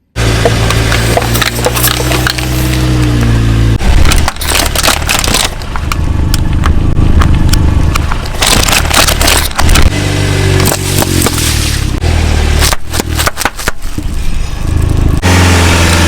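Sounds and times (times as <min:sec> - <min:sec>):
car engine running low: 0:00.0 - 0:16.0
tyre crushing brittle objects: 0:00.2 - 0:14.4.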